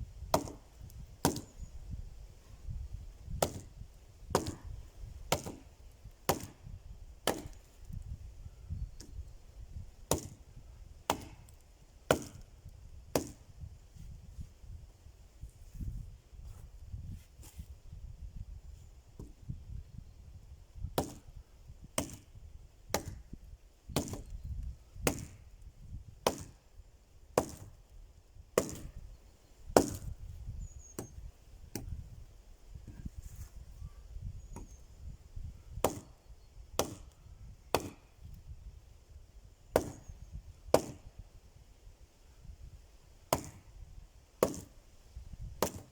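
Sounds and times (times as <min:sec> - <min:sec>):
axe chopping wood: 0:00.2 - 0:01.5, 0:03.3 - 0:05.7, 0:06.3 - 0:07.7, 0:10.1 - 0:10.4, 0:11.1 - 0:12.5, 0:13.1 - 0:13.5, 0:19.2 - 0:19.4, 0:21.0 - 0:21.3, 0:21.9 - 0:22.3, 0:22.9 - 0:23.3, 0:23.9 - 0:24.4, 0:25.0 - 0:25.4, 0:26.2 - 0:26.6, 0:27.4 - 0:27.8, 0:28.6 - 0:29.0, 0:29.7 - 0:30.1, 0:31.0 - 0:32.0, 0:35.8 - 0:36.2, 0:36.8 - 0:38.1, 0:39.7 - 0:40.1, 0:40.7 - 0:41.1, 0:43.3 - 0:43.6, 0:44.4 - 0:44.8, 0:45.6 - 0:45.9.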